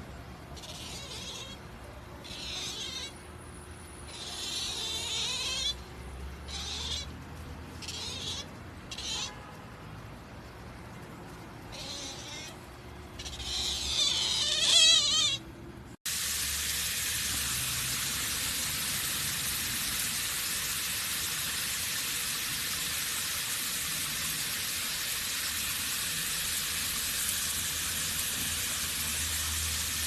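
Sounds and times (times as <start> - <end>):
otter squeaking chirps: 0.6 - 3.2, 4.0 - 5.8, 11.7 - 12.6, 13.2 - 15.5.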